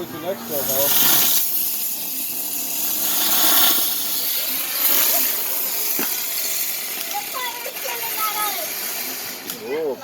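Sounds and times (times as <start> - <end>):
fireworks hissing and whooshing: 0.0 - 10.0
sharp firework crack: 0.6 - 9.6.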